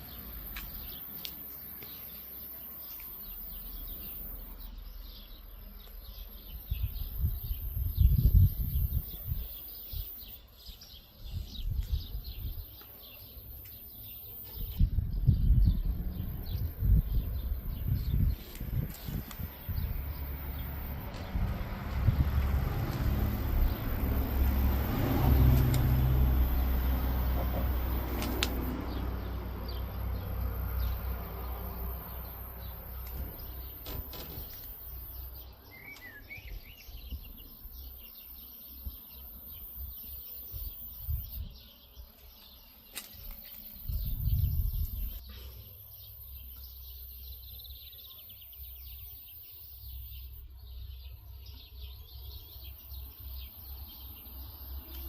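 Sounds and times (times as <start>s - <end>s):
small birds chirping: 0.0s - 55.0s
wind buffeting microphone: 6.6s - 10.2s, 11.2s - 12.7s, 14.6s - 26.8s, 43.8s - 45.2s.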